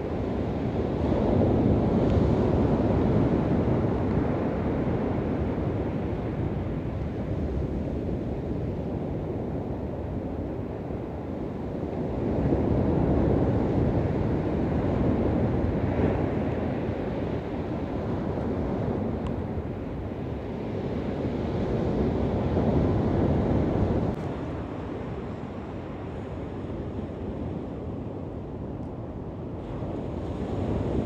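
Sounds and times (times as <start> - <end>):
wind buffeting microphone: 0.0 - 31.0
waves washing onto shore: 29.4 - 31.0.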